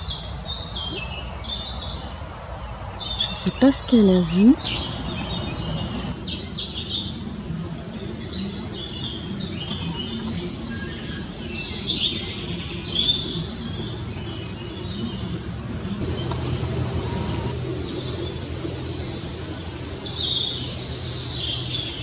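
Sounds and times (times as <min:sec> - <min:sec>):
low background noise: 0:00.0 - 0:22.0
small birds chirping: 0:00.0 - 0:22.0.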